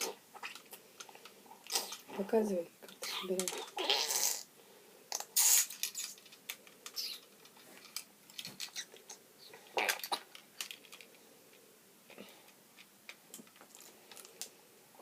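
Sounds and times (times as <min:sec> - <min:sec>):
plastic bricks clicking and rattling: 0:02.8 - 0:03.8, 0:05.2 - 0:09.2, 0:09.8 - 0:11.2.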